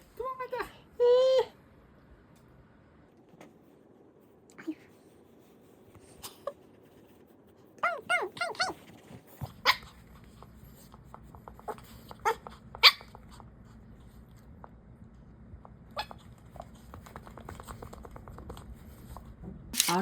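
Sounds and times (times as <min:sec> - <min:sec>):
low steady hum: 0:00.0 - 0:20.0
small dog barking: 0:07.8 - 0:08.8, 0:12.2 - 0:13.2.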